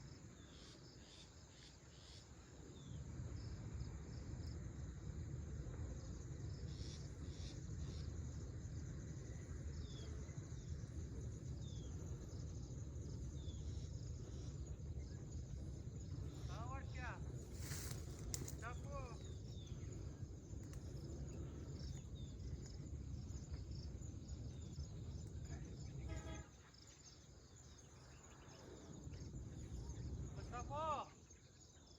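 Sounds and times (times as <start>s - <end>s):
insects: 0.0s - 31.9s
low steady rumble: 3.0s - 30.6s
birds chirping: 6.5s - 31.9s.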